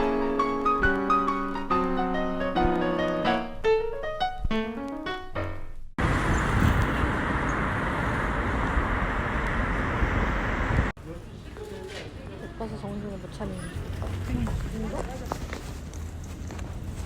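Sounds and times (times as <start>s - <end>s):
solo piano music: 0.0s - 5.7s
traffic rumble: 6.0s - 17.0s.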